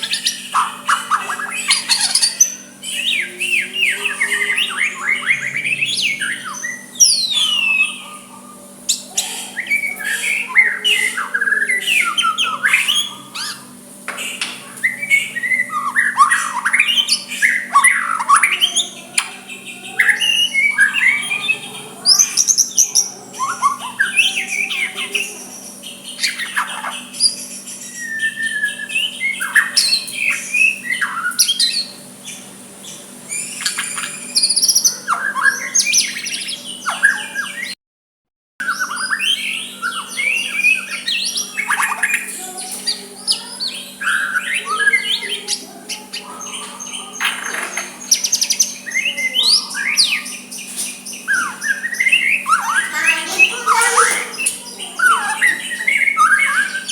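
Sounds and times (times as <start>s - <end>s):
songbird singing whistles: 0.0s - 37.8s, 38.6s - 56.9s.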